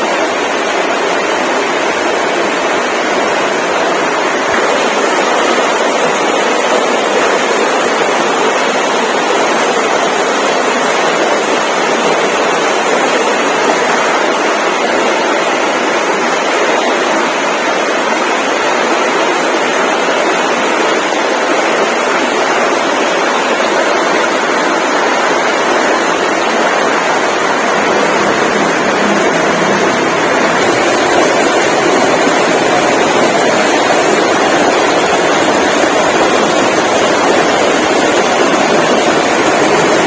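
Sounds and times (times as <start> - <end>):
steady rushing noise: 22.1 - 40.0.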